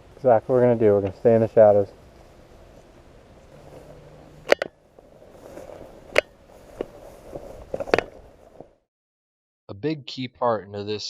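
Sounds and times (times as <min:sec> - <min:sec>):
faint background noise: 0:00.0 - 0:08.7.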